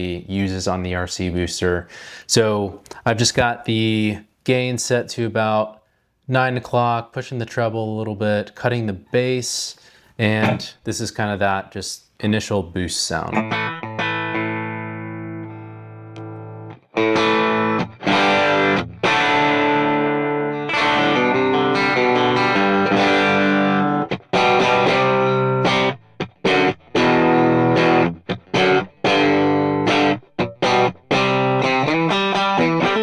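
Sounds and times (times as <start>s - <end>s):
electric guitar chords: 13.3s - 33.0s.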